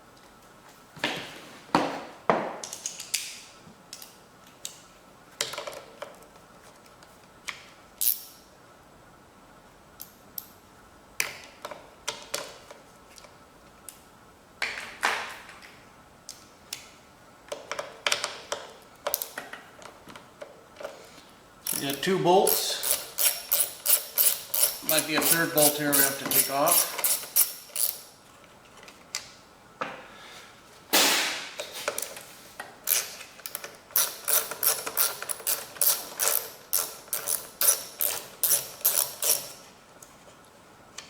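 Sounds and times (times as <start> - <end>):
hand tools clicking and clattering: 21.7 - 28.1, 31.7 - 39.6.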